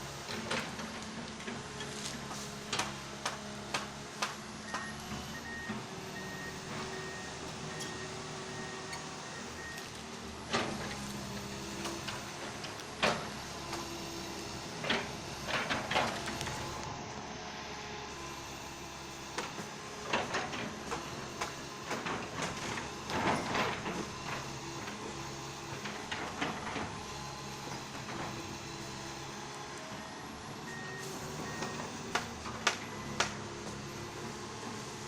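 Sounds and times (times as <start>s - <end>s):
excavator diesel engine running: 0.0s - 35.0s
sharp cracks and knocks of trees: 0.5s - 4.4s, 32.1s - 33.4s.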